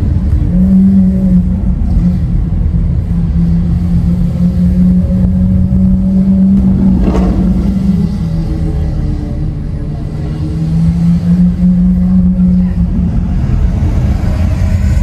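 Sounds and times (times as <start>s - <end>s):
car engine deep drone: 0.0s - 15.0s.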